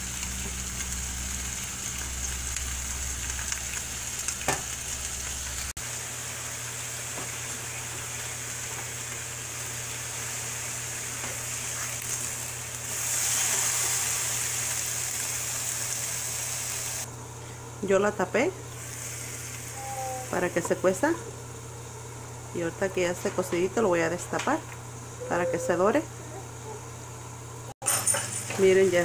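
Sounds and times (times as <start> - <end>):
chicken sizzling in a skillet: 0.0 - 17.1, 18.7 - 20.5.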